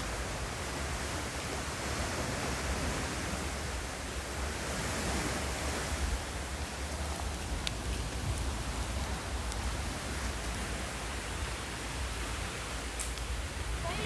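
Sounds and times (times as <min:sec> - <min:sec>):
steady rushing noise: 0:00.0 - 0:14.0
faint click: 0:07.6 - 0:07.8.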